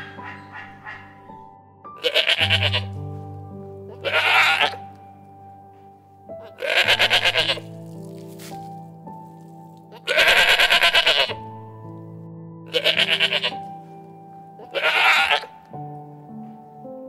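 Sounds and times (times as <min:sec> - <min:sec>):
soft piano music: 0:00.0 - 0:17.0
animal bleating: 0:02.0 - 0:03.0, 0:03.9 - 0:04.9, 0:06.4 - 0:07.8, 0:09.9 - 0:11.5, 0:12.7 - 0:13.7, 0:14.6 - 0:15.6.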